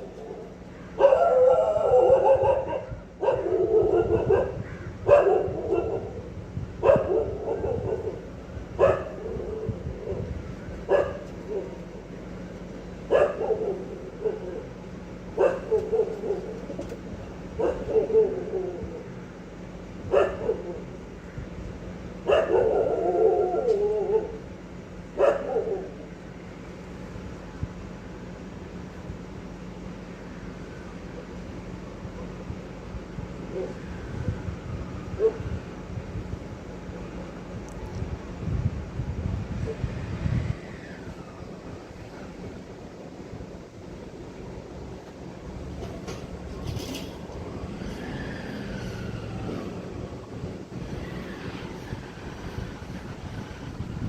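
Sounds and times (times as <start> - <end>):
dog barking: 1.0 - 8.2, 8.8 - 9.6, 10.9 - 11.8, 13.1 - 14.7, 15.4 - 16.6, 17.6 - 18.8, 20.1 - 20.8, 22.2 - 24.4, 25.2 - 26.0, 35.2 - 35.5.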